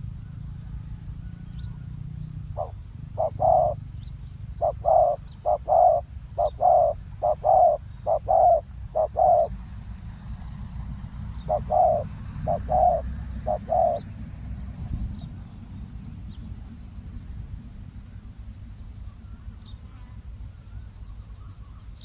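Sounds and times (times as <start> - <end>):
small birds chirping: 0.7 - 9.6, 11.3 - 22.0
steady low rumble: 2.2 - 22.0
dove cooing: 2.5 - 3.8, 4.6 - 9.6, 11.3 - 14.2.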